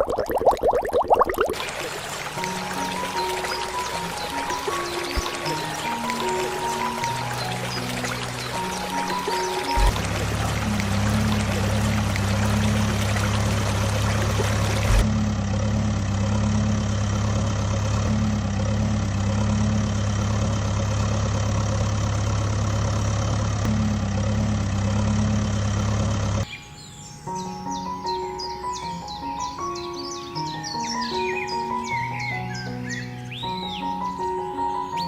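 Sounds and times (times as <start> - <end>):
heavy vehicle engine humming: 1.6 - 26.5.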